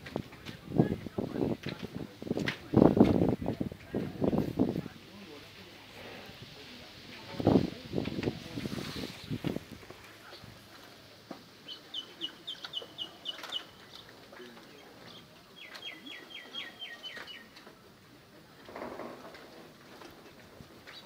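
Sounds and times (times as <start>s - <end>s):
small bird singing trills: 15.1s - 17.5s.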